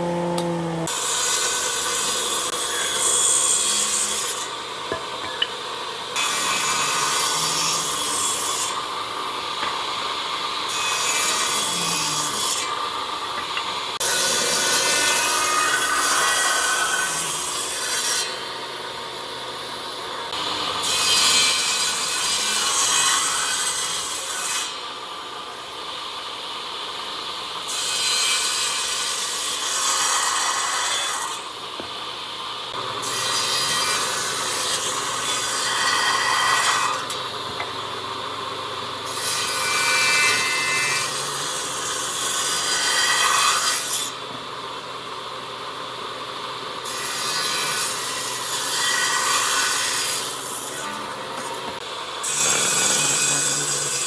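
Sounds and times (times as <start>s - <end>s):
tool sawing wood: 0.0s - 4.6s, 32.7s - 38.2s, 39.0s - 44.2s, 46.9s - 54.0s.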